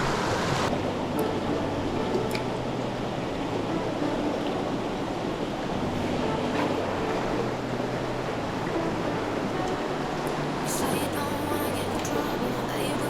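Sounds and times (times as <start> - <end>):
flowing stream water: 0.0 - 13.0.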